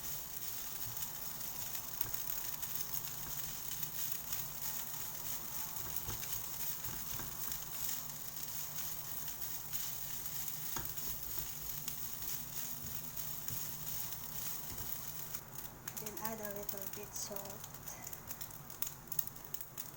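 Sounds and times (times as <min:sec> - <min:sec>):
rice sizzling in a hot pan: 0:00.0 - 0:19.9
spatula scraping and tapping: 0:05.7 - 0:16.0.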